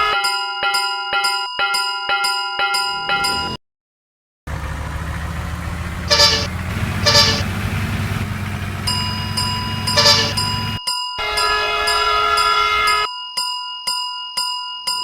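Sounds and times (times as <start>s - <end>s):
railway crossing bell: 0.0s - 3.6s, 6.0s - 15.0s
crossing warning tone: 5.2s - 10.8s
train horn toots: 6.0s - 13.1s.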